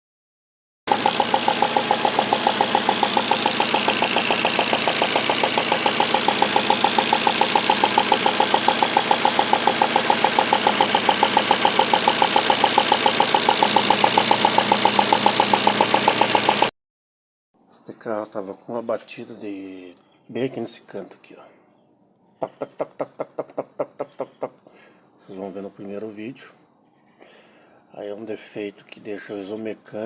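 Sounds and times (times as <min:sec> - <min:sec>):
petrol engine idling: 0:00.9 - 0:16.7
rapid engine tapping: 0:00.9 - 0:16.7.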